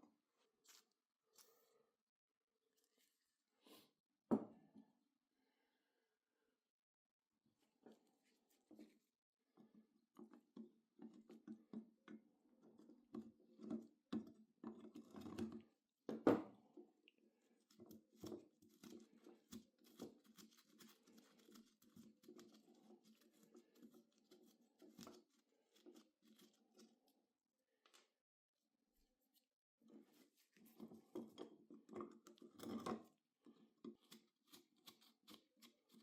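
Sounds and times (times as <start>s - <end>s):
objects clicking and scraping: 30.0s - 33.2s.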